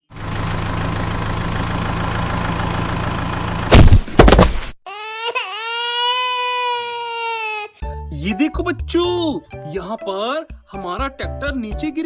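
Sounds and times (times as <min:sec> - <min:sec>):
engine idling: 0:00.1 - 0:03.7.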